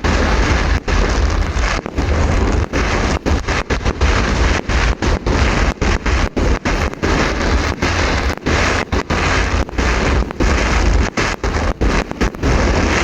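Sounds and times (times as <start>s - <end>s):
fireworks bangs and crackle: 0.0s - 13.0s
heavy low rumble: 0.0s - 13.0s.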